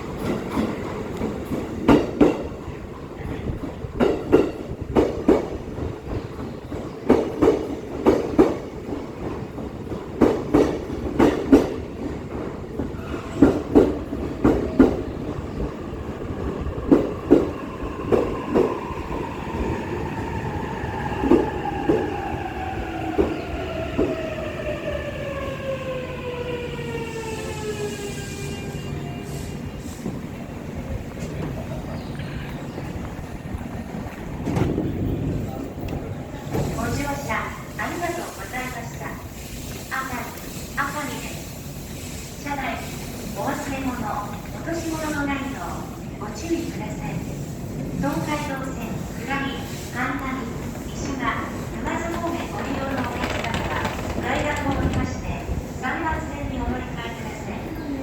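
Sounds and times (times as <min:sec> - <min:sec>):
train wheels clacking over rail joints: 0:51.6 - 0:55.8.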